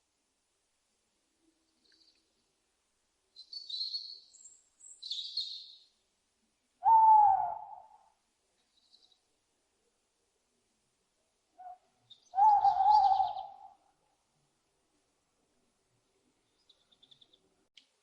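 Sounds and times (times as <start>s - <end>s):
owl screeches: 6.8s - 8.0s, 12.4s - 13.7s
owl hoot: 6.8s - 8.2s, 11.6s - 13.9s.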